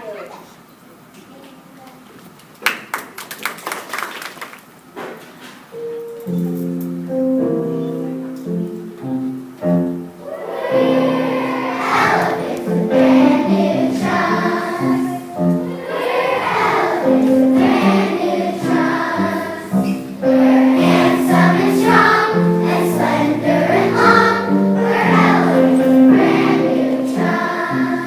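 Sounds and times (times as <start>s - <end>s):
choir singing held notes: 5.7s - 28.0s.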